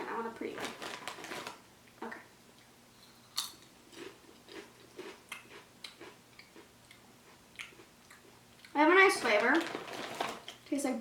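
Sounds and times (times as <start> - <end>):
crunchy chewing: 3.8 - 8.8.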